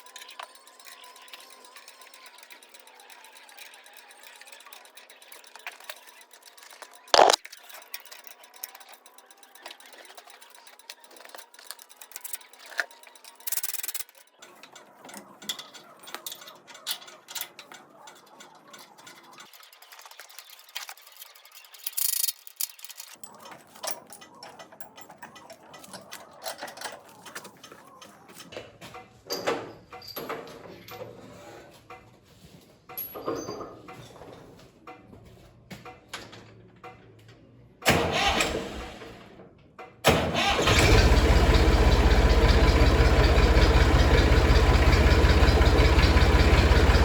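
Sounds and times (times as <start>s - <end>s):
tools and metal parts clicking: 0.0s - 31.6s, 32.9s - 34.6s.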